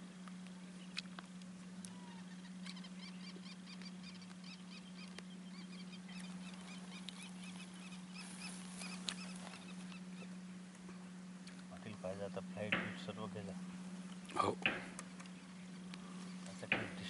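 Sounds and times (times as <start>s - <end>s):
steady low hum: 0.0s - 17.0s
rapid chirping bird calls: 1.8s - 10.6s.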